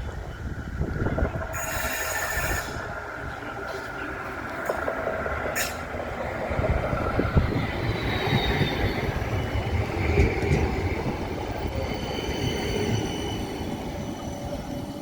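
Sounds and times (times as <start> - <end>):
tram rumbling: 0.0 - 15.0
faint wheel squeal: 1.6 - 2.8.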